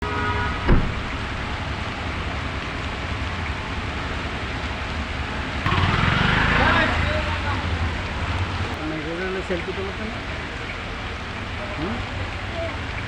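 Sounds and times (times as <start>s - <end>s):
steady outdoor noise: 0.0s - 13.0s
single thump: 0.7s - 1.2s.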